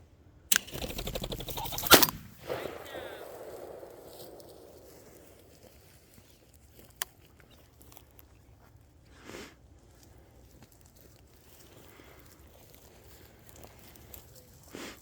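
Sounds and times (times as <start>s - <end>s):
sharp click: 0.5s - 4.8s.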